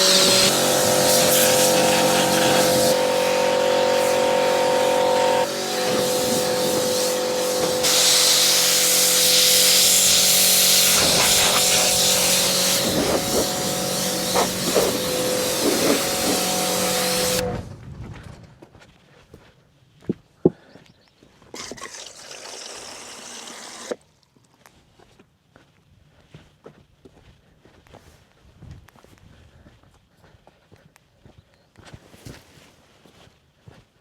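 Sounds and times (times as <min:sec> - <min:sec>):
hissing noise: 0:00.0 - 0:17.5
engine running steadily: 0:00.0 - 0:17.7.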